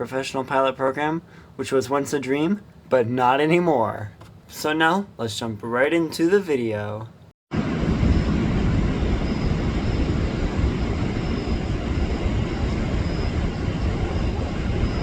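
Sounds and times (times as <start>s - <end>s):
jet engines roaring: 7.5s - 15.0s.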